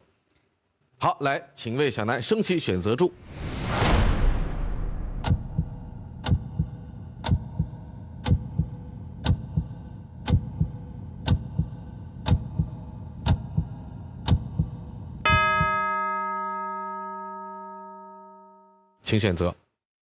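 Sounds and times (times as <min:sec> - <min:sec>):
heartbeat-like double thump: 0:03.4 - 0:15.8
clock-like tick: 0:05.2 - 0:15.8.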